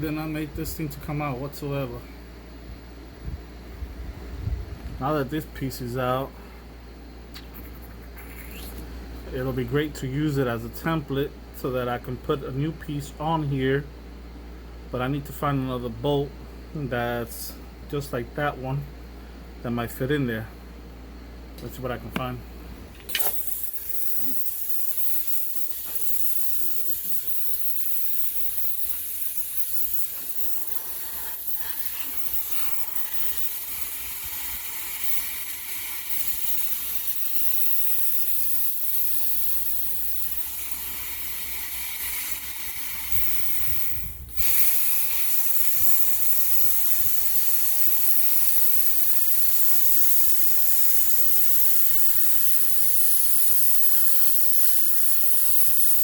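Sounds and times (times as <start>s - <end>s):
steady loud hiss: 0.0s - 2.2s, 4.8s - 6.6s, 21.6s - 56.0s.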